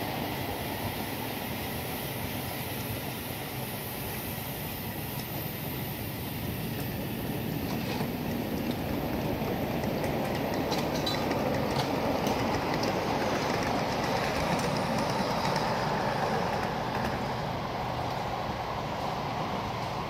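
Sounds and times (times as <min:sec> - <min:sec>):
wheels rumbling on rail: 0:00.0 - 0:20.0
clicks over rail joints: 0:07.6 - 0:17.3.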